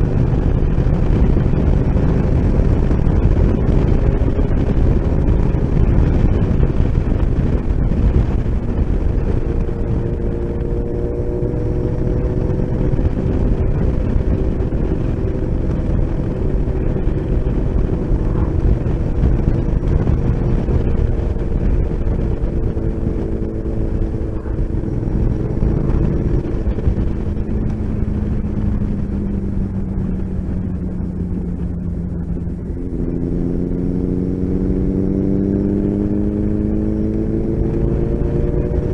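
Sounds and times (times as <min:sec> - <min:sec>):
motorcycle engine: 0:00.0 - 0:38.9
wind rush on microphone: 0:00.0 - 0:38.9.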